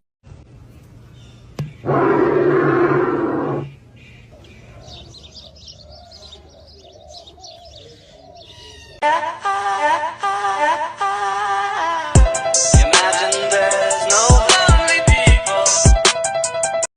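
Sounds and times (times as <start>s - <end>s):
bird calling and twittering: 1.0s - 9.0s.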